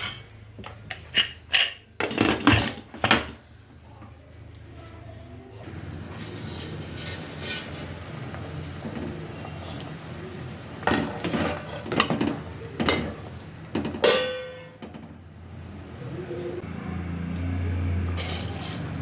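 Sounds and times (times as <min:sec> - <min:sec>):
metal pots and utensils clattering: 0:00.0 - 0:05.0, 0:05.7 - 0:10.0, 0:10.7 - 0:15.3, 0:16.0 - 0:19.0
loud ringing metal clang: 0:14.0 - 0:14.8.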